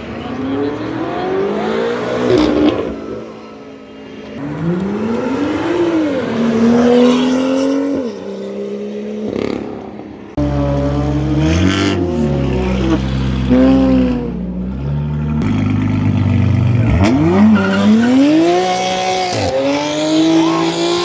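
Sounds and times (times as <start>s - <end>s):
deeper engine revving: 10.4s - 21.0s
sports car engine accelerating: 10.4s - 21.0s.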